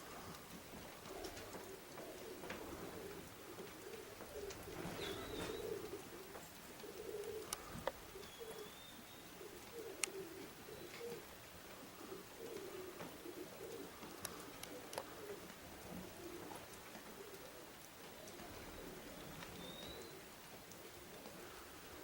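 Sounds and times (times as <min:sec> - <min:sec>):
pigeons cooing: 0:00.0 - 0:22.0
faint high chirps: 0:18.0 - 0:20.2.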